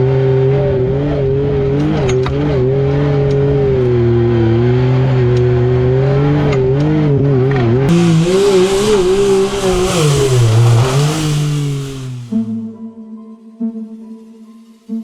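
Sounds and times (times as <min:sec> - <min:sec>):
engine revving: 0:00.0 - 0:12.7
loud hiss: 0:07.9 - 0:12.6.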